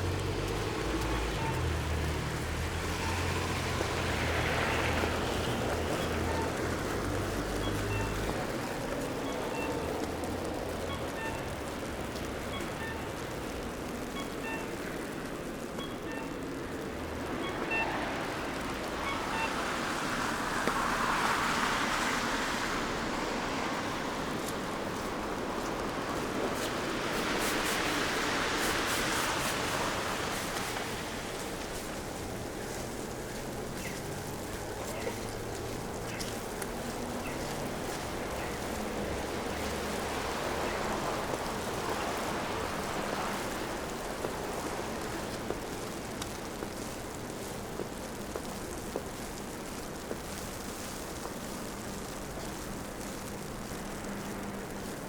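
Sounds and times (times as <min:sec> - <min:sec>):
car passing on wet road: 0:00.0 - 0:55.0
city noise hiss: 0:00.0 - 0:55.0
faint ticks: 0:44.2 - 0:55.0.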